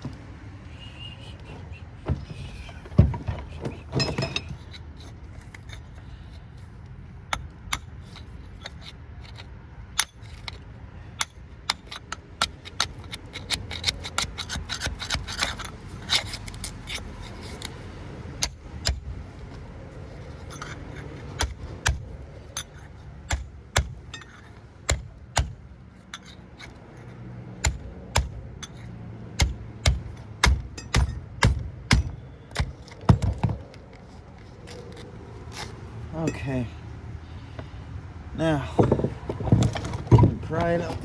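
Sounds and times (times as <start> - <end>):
hammer striking metal: 29.4 - 33.3.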